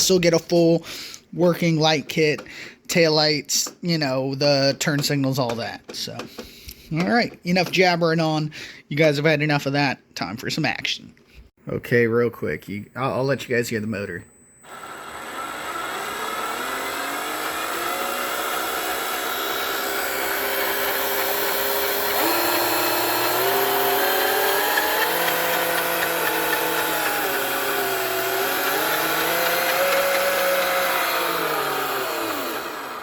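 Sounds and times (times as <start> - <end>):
electric motor whining: 14.3 - 33.0.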